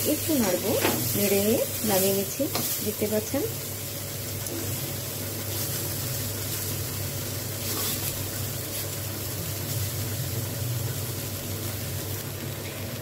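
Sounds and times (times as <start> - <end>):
vegetables sizzling in oil: 0.0 - 13.0
metal spatula scraping: 7.6 - 8.2.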